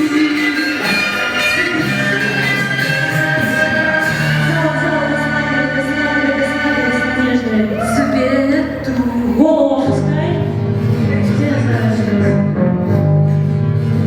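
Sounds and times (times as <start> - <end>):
backing music: 0.0 - 14.0
low organ-like chords: 0.1 - 11.5.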